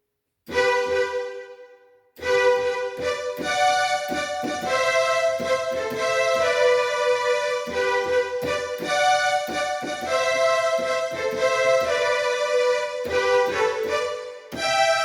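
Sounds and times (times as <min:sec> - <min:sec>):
electronic keyboard slow melody: 0:00.5 - 0:15.0.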